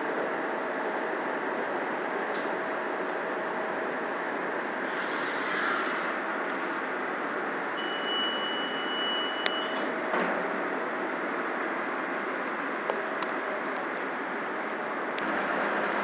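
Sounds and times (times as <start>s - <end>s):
train standing at platform: 0.0s - 16.0s
air hiss: 4.8s - 6.8s
high beep: 7.8s - 9.8s.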